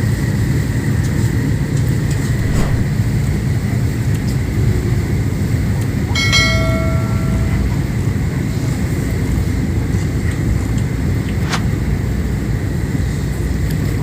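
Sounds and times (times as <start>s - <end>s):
metallic ring: 6.2s - 8.1s.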